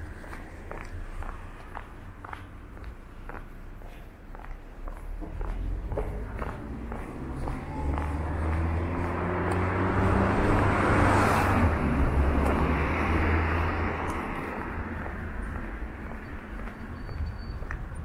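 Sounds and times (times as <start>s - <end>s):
car engine humming: 5.0s - 16.4s.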